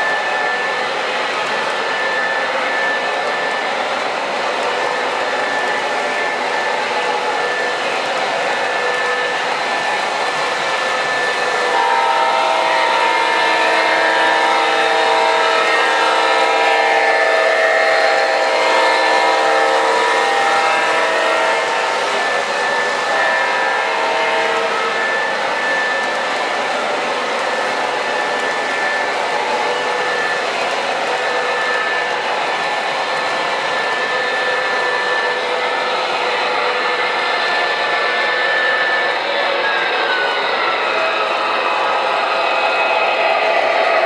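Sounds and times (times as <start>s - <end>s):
model train diesel engine sound: 0.0s - 44.0s
model train rolling noise: 0.0s - 44.0s
locomotive horn blast: 11.2s - 26.0s.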